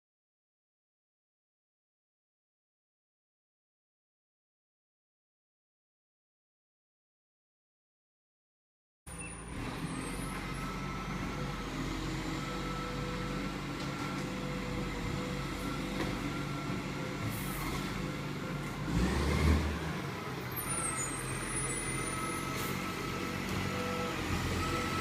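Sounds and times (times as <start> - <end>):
rubbish truck engine running: 9.1 - 25.0.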